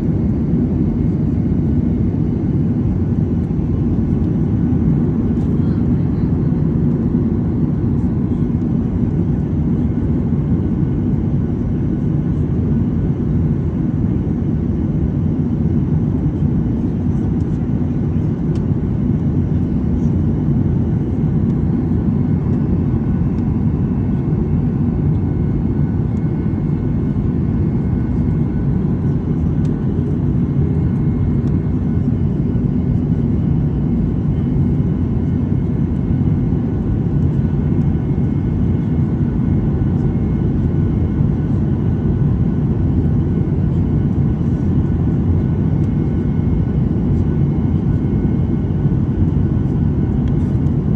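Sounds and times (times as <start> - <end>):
faint steady whines: 0.0 - 50.9
airliner cabin roar: 18.5 - 50.9.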